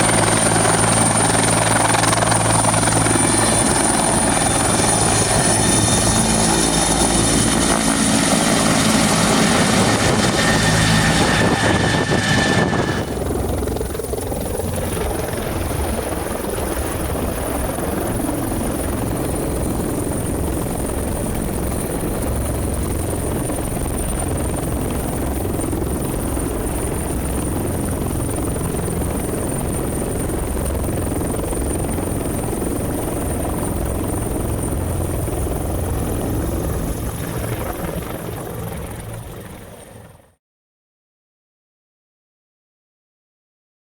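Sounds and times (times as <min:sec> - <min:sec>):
high turbine whine: 0:00.0 - 0:18.4
helicopter engines and rotor: 0:00.0 - 0:40.4.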